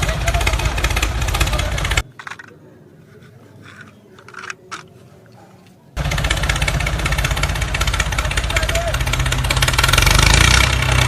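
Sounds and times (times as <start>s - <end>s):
light clicks and scrapes: 2.0s - 5.8s.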